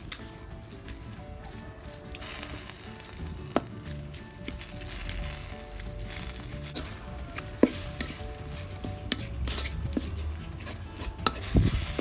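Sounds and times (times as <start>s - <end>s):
meat sizzling in a wok: 0.0s - 12.0s
spatula stirring and scraping: 0.0s - 12.0s
spatula knocking on pan: 6.8s - 11.5s.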